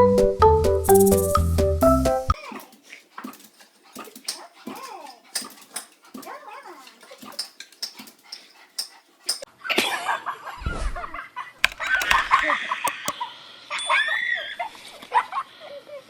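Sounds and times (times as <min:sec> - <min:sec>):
scattered clicks: 0:11.6 - 0:13.2.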